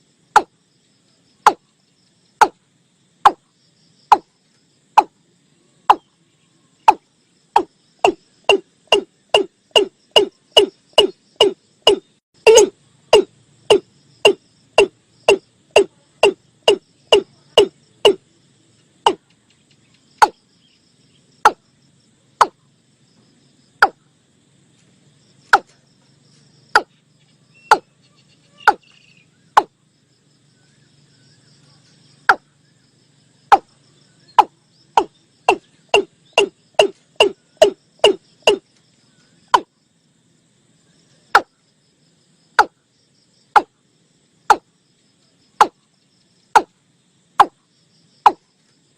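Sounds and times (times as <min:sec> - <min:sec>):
bird call lure notes: 0:07.6 - 0:18.2.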